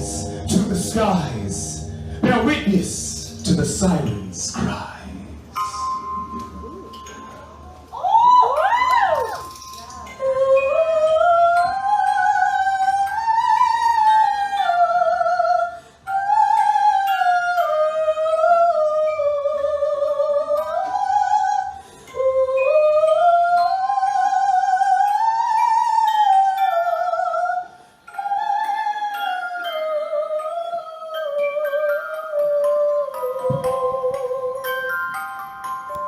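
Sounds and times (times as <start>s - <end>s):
faint low accompaniment: 0.0s - 9.0s
eerie wordless melody with vibrato: 0.0s - 36.0s.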